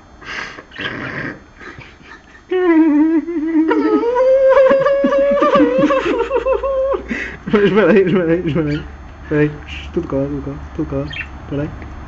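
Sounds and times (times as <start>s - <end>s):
loud wavering howl: 2.5s - 7.1s.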